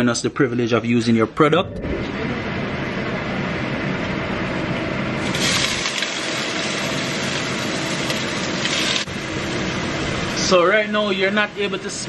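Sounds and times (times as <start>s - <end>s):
vegetables sizzling in hot oil: 5.2s - 9.7s.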